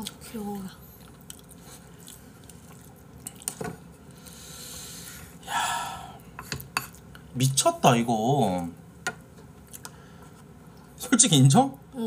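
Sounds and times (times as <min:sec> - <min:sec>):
faint chewing: 0:00.0 - 0:04.4, 0:09.6 - 0:10.9.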